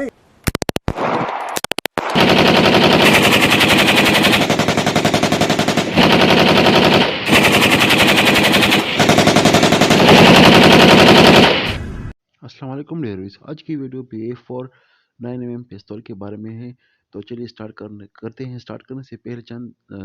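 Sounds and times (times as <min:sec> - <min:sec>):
automatic gunfire: 0:02.0 - 0:11.8.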